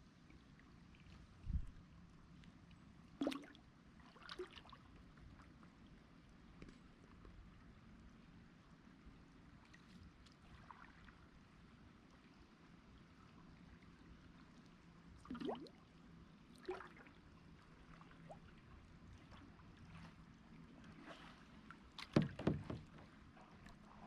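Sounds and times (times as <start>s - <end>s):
faint river water: 0.0s - 24.0s.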